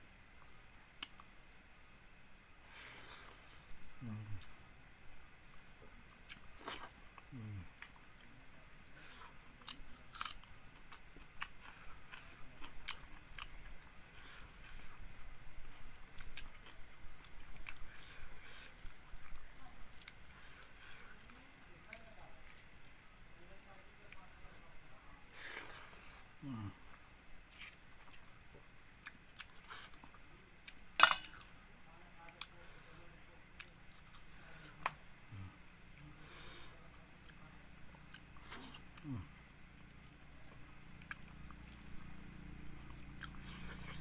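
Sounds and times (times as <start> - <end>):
person chewing food: 0.9 - 1.4, 6.2 - 22.6, 25.4 - 31.5, 38.0 - 39.3, 40.0 - 42.2, 42.8 - 44.0.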